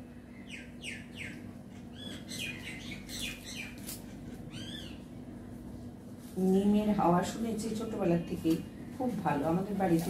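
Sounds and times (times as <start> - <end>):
steady low hum: 0.0 - 10.0
small birds chirping: 0.2 - 5.2.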